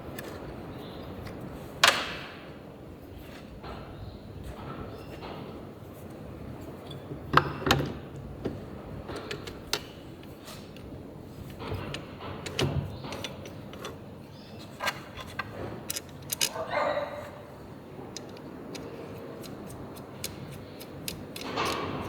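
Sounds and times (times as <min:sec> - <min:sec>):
tools and metal parts clicking: 0:06.6 - 0:22.0.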